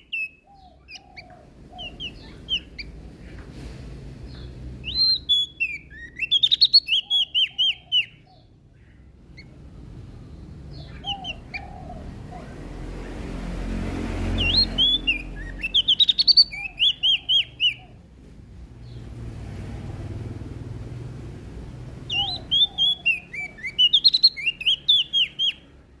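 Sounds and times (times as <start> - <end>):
bird sweeping chirps: 0.0 - 3.4, 4.3 - 8.5, 10.6 - 13.2, 14.2 - 18.0, 22.0 - 25.7
low steady rumble: 8.2 - 15.7.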